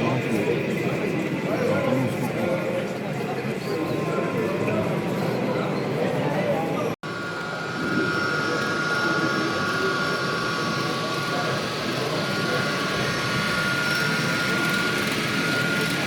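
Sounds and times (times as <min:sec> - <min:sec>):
indistinct crowd chatter: 0:00.0 - 0:16.0
steady high whine: 0:07.0 - 0:16.0.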